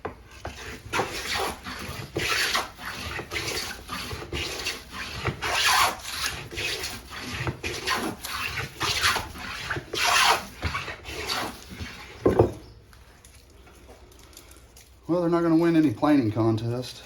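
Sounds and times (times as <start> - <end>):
hand plane shaving wood: 0.0 - 12.4.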